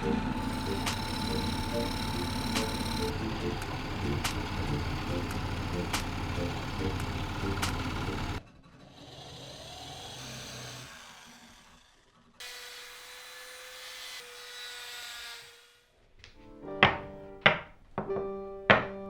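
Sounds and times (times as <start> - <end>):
motor whine: 0.0 - 8.4
power tool working wood: 0.0 - 15.8.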